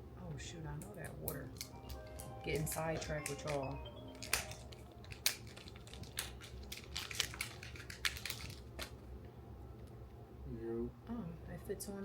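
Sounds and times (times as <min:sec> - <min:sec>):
low steady hum: 0:00.0 - 0:12.0
plastic packaging crinkling: 0:01.5 - 0:09.1.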